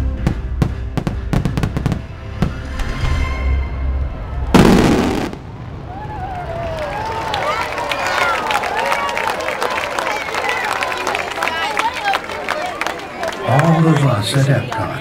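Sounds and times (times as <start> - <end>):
fireworks bursting: 0.6 - 2.8, 4.5 - 7.0.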